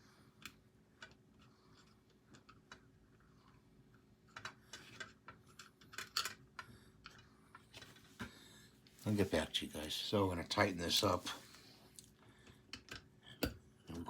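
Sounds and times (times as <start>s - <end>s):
plastic parts clicking: 4.3s - 8.0s.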